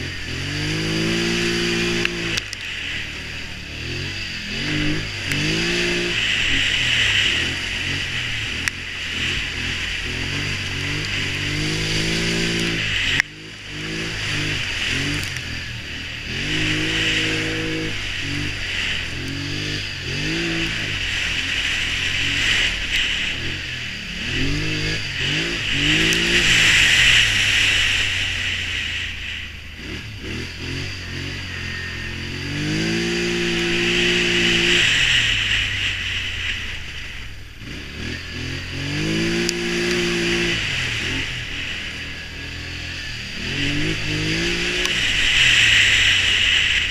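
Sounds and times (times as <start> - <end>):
atv engine revving: 0.0 - 46.9.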